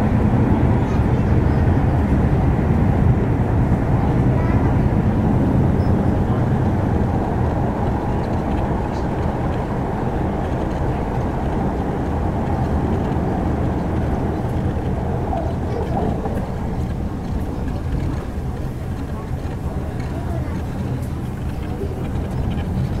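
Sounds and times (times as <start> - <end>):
steady low hum: 0.0 - 23.0
train wheels rumbling on rail: 0.0 - 23.0.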